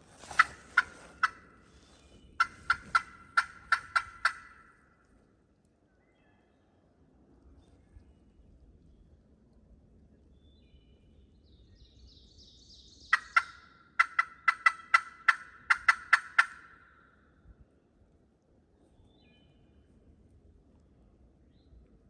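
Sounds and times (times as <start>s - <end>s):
turkey clucking: 0.2s - 1.6s, 2.4s - 4.8s, 13.1s - 16.9s.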